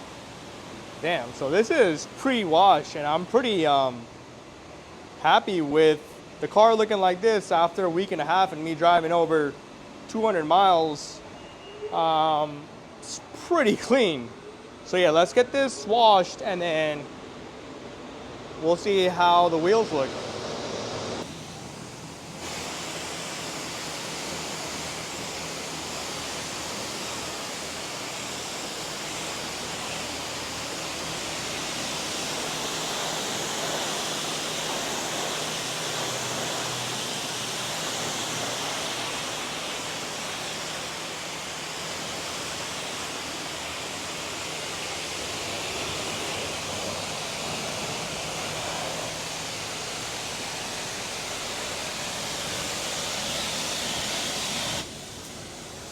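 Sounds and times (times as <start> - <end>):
water spraying onto a car: 21.2 - 55.9.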